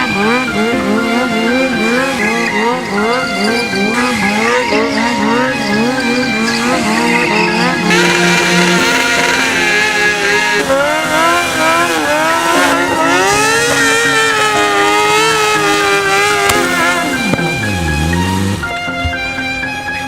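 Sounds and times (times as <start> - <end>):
motorcycle engine revving: 0.0 - 19.4
tyre squeal: 1.8 - 15.4.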